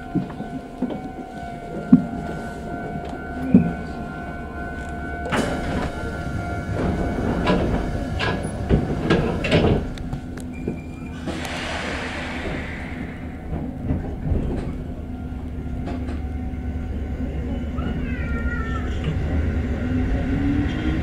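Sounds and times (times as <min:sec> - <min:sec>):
electric train hum: 0:00.0 - 0:21.0
air hiss: 0:11.1 - 0:14.8.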